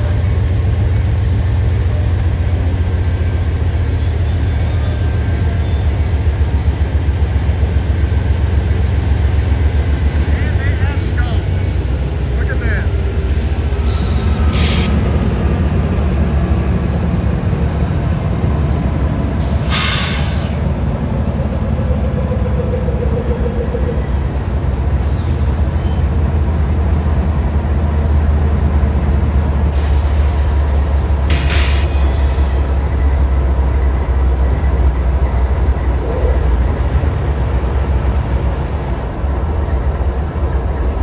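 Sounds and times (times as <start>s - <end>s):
train rumbling past: 0.0s - 41.0s
train hiss bursts: 13.3s - 15.1s, 19.4s - 20.6s, 29.6s - 32.9s.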